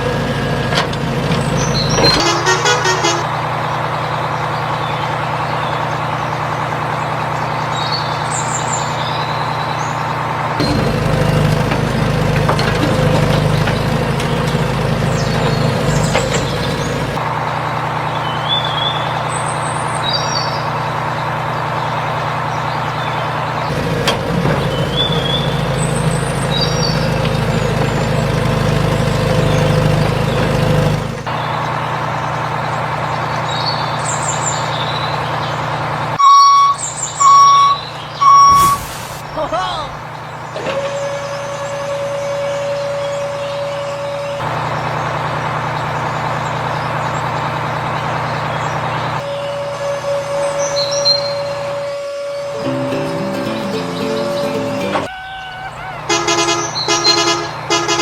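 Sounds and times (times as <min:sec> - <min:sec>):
heavy vehicle engine running: 0:00.0 - 0:58.0
birds chirping faintly: 0:01.2 - 0:10.8, 0:12.0 - 0:23.8, 0:24.6 - 0:57.7
reversing alarm beeping: 0:36.2 - 0:39.2, 0:40.3 - 0:44.9, 0:49.2 - 0:55.1.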